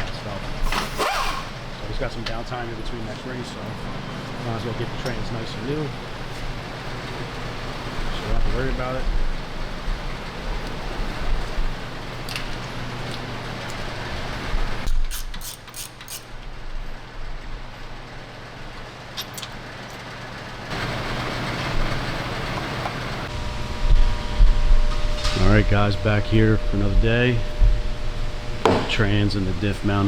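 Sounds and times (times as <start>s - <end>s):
shop background noise: 0.5s - 1.8s, 14.3s - 16.3s.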